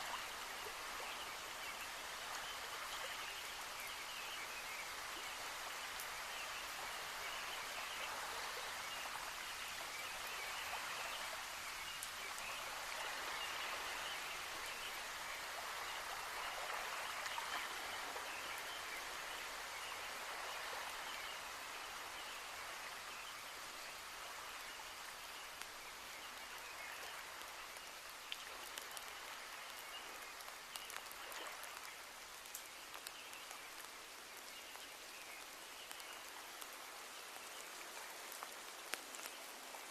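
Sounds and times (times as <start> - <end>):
steady rainfall: 0.0 - 39.9
water drips: 25.1 - 39.9.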